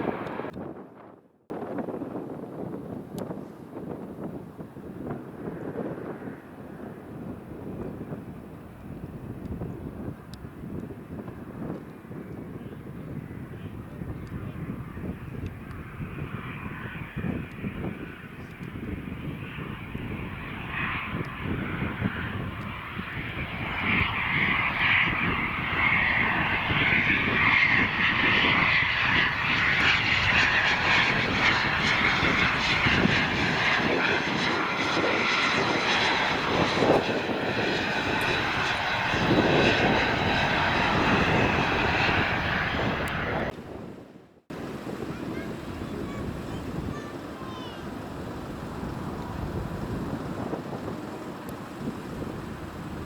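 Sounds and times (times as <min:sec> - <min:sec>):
jet engines whining: 0:00.0 - 0:00.6, 0:04.2 - 0:53.0.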